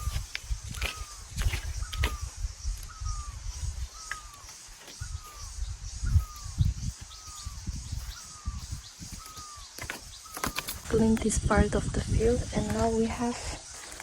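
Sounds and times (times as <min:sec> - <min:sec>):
bird calling falling note: 0:06.1 - 0:11.1.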